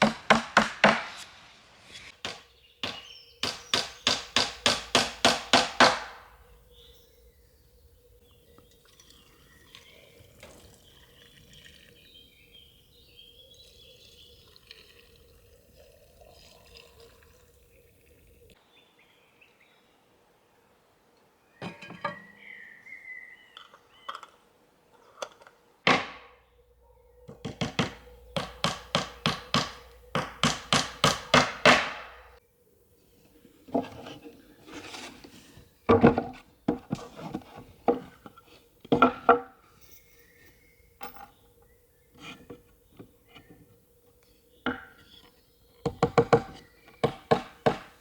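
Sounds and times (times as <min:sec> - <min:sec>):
sharp knocks: 0:00.0 - 0:01.4, 0:02.2 - 0:06.3, 0:25.9 - 0:26.3, 0:27.3 - 0:32.3
faint high chirping: 0:39.6 - 0:47.3.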